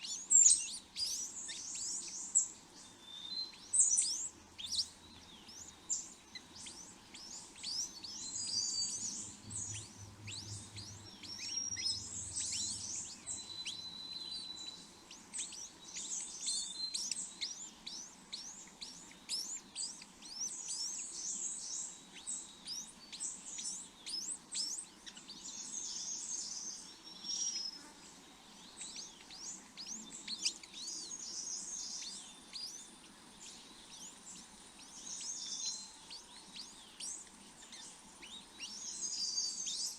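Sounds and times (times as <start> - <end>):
small birds chirping: 0.0 - 39.9
thin bird whistles: 5.6 - 27.8.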